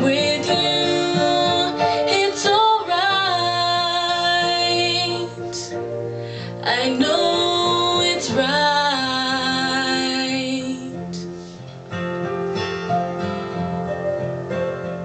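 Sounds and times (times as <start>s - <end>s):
woman singing: 0.0s - 11.3s
acoustic guitar: 0.0s - 15.0s.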